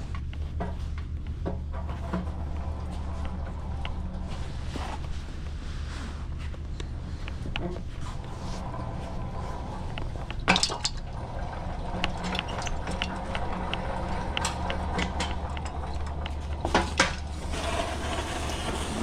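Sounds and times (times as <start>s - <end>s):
steady low hum: 0.0s - 19.0s
pallet jack clanking and rattling: 8.6s - 19.0s.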